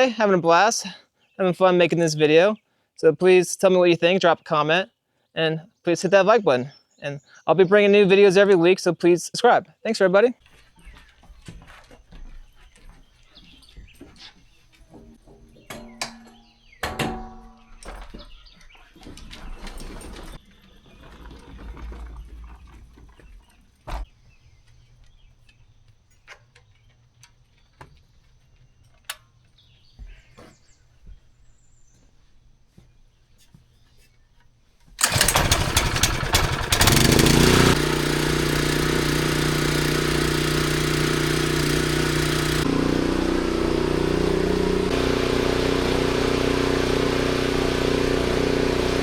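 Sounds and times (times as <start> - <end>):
small gas engine starting and running: 35.0 - 49.0.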